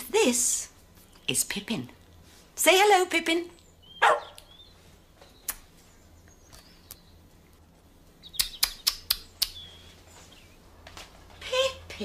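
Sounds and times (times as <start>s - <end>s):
small birds chirping: 3.3s - 12.0s.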